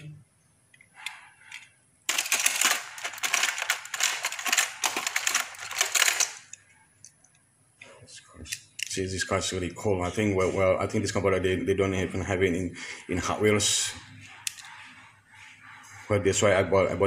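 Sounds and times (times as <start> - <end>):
toy cars clattering: 1.0 - 6.7.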